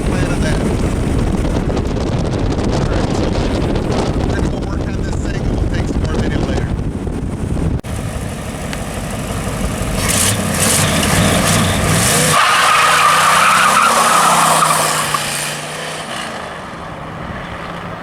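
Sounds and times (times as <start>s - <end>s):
car engine revving hard: 9.0s - 18.0s
loud tire squeal: 10.0s - 17.9s.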